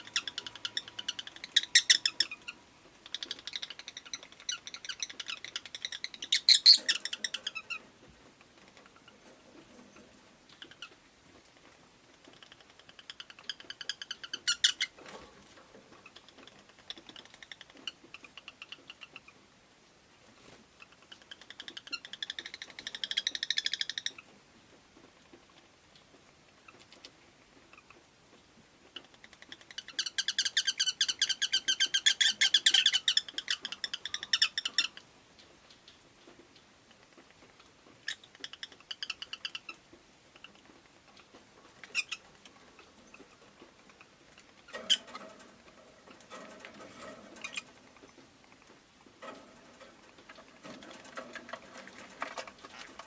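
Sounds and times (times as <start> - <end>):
lovebird chattering chirps: 0.0 - 7.8, 12.4 - 15.0, 20.8 - 24.2, 29.0 - 35.0, 41.8 - 42.9.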